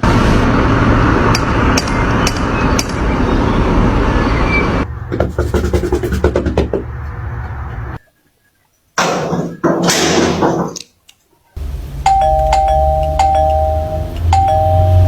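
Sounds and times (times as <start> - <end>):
loud rumbling noise: 0.0 - 8.0, 11.6 - 15.0.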